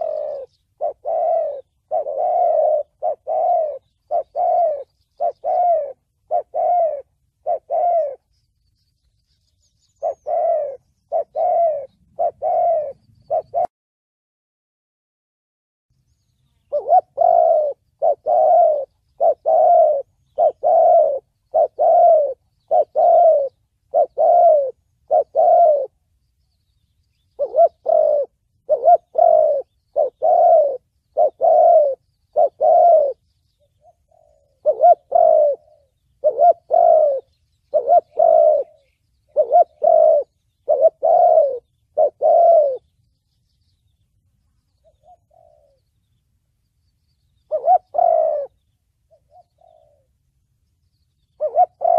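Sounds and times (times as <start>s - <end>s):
dove cooing: 0.0s - 8.3s, 9.6s - 13.7s, 16.6s - 26.1s, 27.1s - 42.9s, 44.7s - 46.1s, 47.4s - 50.3s, 51.2s - 51.9s.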